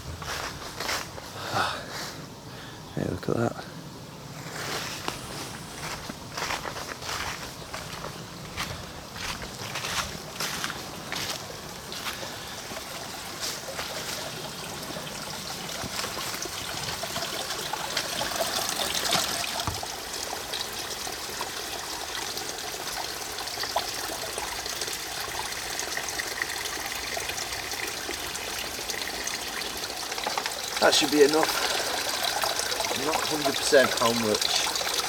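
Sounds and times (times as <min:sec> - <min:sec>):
stream trickling: 0:03.2 - 0:35.0
water gurgling into bag: 0:15.8 - 0:20.0, 0:26.8 - 0:35.0.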